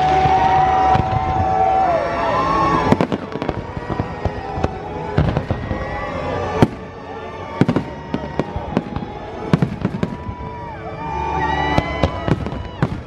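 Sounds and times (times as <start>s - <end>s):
fireworks bangs: 0.0s - 10.8s, 11.6s - 13.0s
music: 0.0s - 13.0s.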